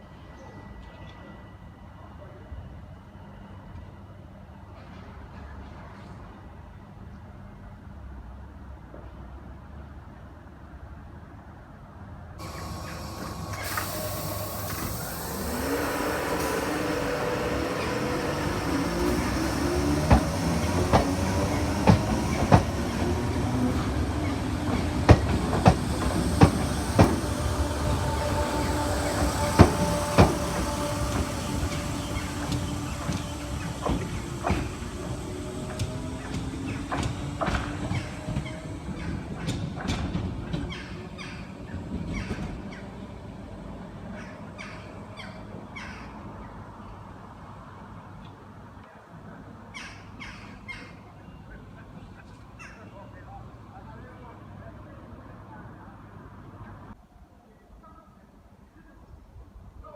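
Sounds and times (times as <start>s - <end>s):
train motors whining: 12.4s - 40.5s
train wheels clicking on track: 12.4s - 42.9s.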